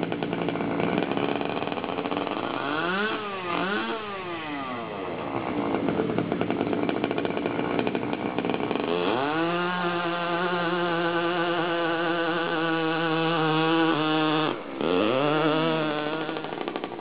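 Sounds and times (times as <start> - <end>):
small engine buzzing: 0.0 - 17.0.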